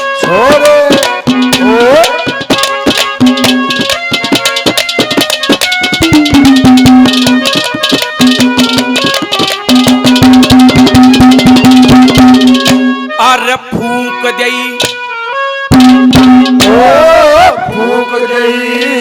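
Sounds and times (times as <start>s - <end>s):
melodic instrument long notes: 0.0s - 19.0s
fast hand drum strokes: 0.2s - 13.0s, 15.7s - 17.3s.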